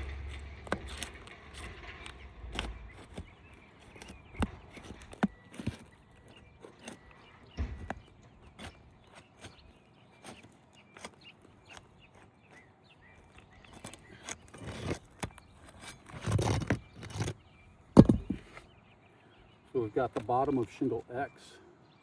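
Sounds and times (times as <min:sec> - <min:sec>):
hands tapping and knocking shingles: 0:00.0 - 0:12.6, 0:18.0 - 0:18.6
scraping and rustling: 0:00.0 - 0:18.7.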